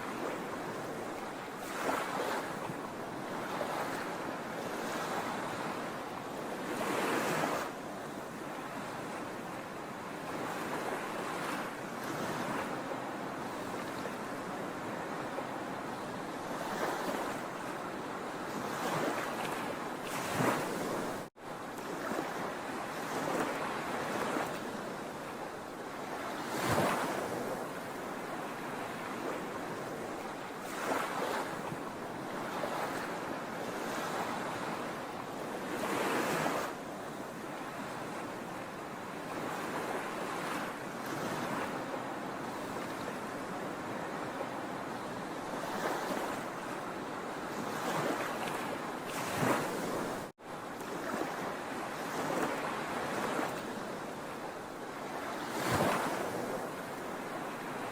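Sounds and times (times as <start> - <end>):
waves breaking: 0.0 - 5.9, 10.0 - 57.9.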